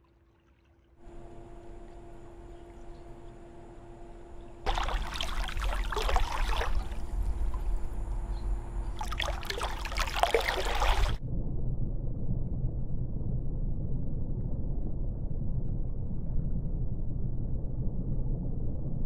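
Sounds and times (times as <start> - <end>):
low steady hum: 1.0 - 19.0
pool water splashing: 4.7 - 11.2.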